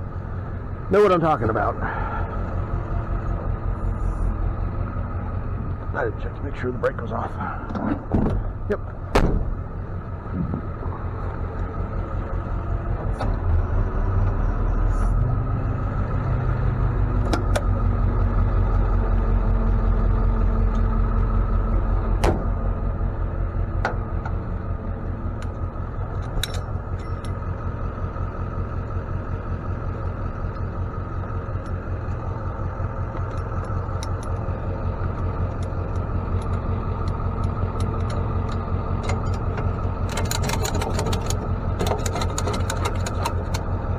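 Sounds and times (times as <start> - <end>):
truck engine running: 0.0 - 43.9
sharp clicks or knocks: 9.1 - 9.6.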